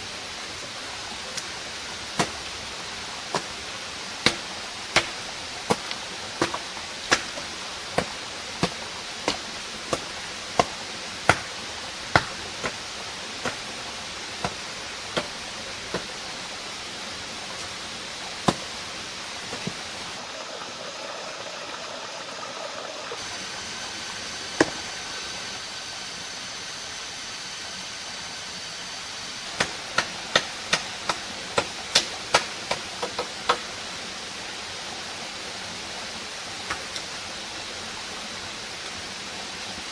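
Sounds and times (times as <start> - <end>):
steady background hiss: 0.0 - 39.9
blade chopping wood: 2.1 - 2.5, 3.3 - 3.6, 4.2 - 12.8, 13.4 - 13.7, 14.4 - 16.1, 18.4 - 18.7, 24.6 - 24.8.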